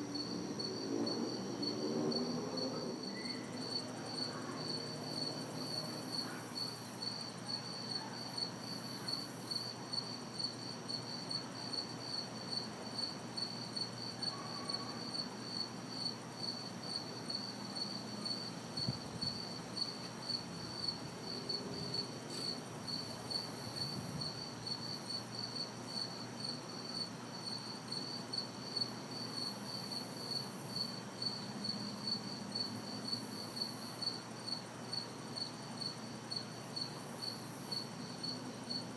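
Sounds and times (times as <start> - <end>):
distant city traffic hum: 0.0 - 8.5
crickets chirping: 0.0 - 38.9
high insect buzz: 0.0 - 38.9.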